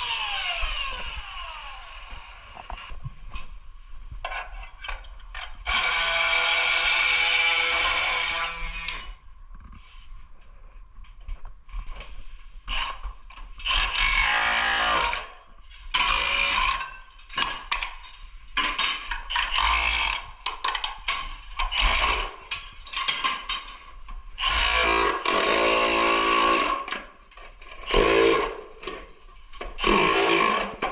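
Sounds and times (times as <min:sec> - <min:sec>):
tools rasping and clicking: 0:12.7 - 0:30.9.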